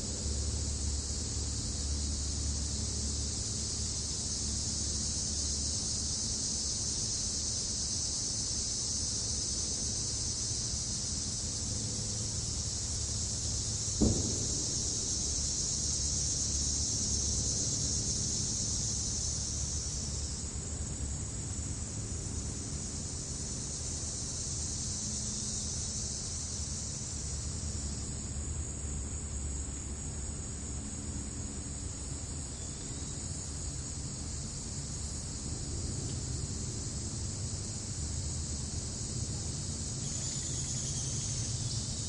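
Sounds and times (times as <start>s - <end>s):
crickets trilling: 0.0s - 42.0s
low steady rumble: 9.8s - 42.0s.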